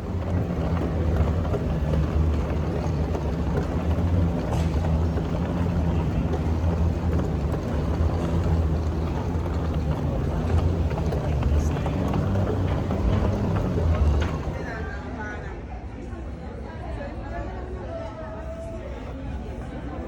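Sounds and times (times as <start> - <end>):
vehicle engine drone: 0.0 - 15.0.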